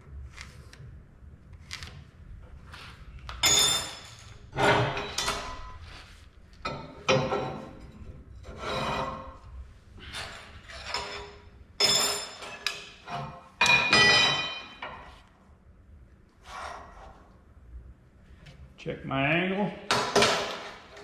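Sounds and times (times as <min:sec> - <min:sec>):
metal scraping on angle iron: 0:06.7 - 0:09.4.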